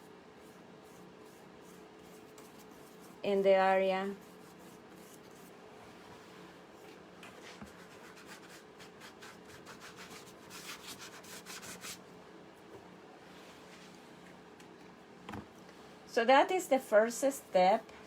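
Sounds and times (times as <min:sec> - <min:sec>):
sponge rubbing painted surface: 0:04.1 - 0:05.5.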